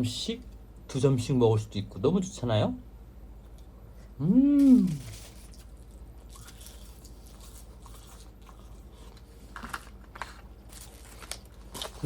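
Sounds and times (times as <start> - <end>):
person chewing: 4.6 - 12.0.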